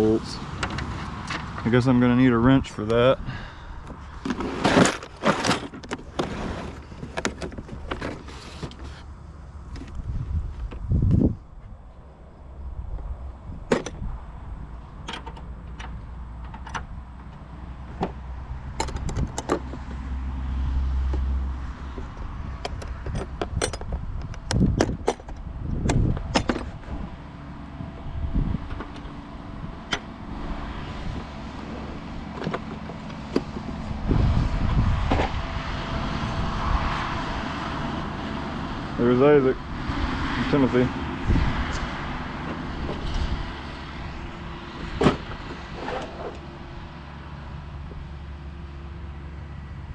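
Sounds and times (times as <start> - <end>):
low rumble: 33.2 - 39.0.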